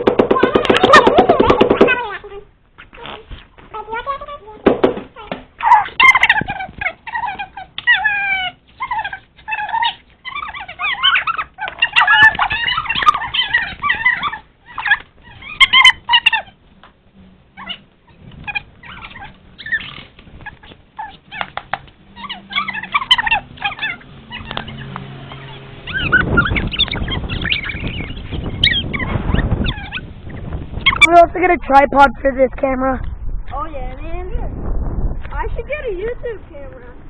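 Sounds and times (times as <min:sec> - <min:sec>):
animal calls bending in pitch: 0:05.2 - 0:16.6, 0:17.6 - 0:31.2.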